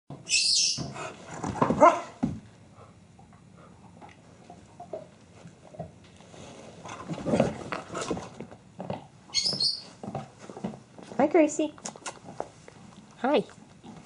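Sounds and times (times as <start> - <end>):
dog barking: 1.8 - 2.2.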